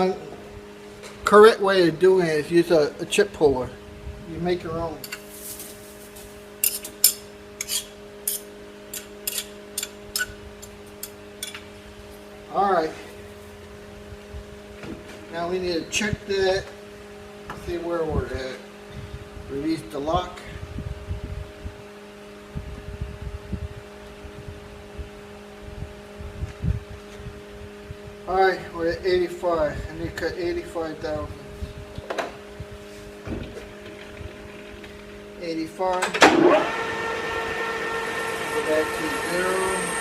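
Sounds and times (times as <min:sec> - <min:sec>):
machine hum: 0:00.0 - 0:40.0
metallic scrapes and clinks: 0:06.6 - 0:10.3
dull knocks and bumps: 0:33.2 - 0:34.2
lathe humming: 0:36.2 - 0:40.0.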